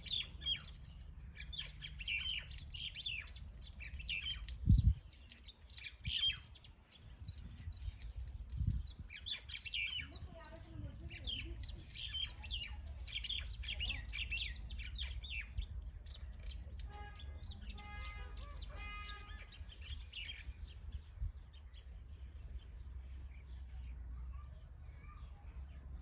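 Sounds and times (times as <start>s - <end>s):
birds chirping: 0.0s - 26.0s
longer lower bird call: 16.8s - 20.4s.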